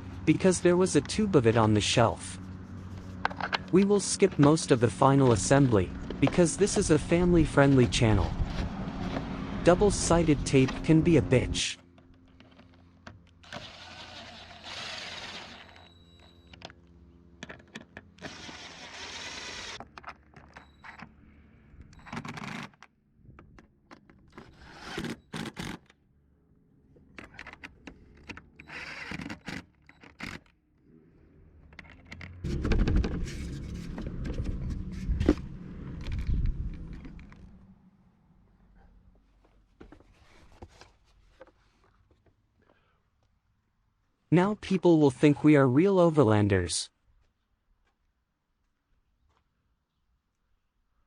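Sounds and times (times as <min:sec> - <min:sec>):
low rumble: 0:32.4 - 0:39.0.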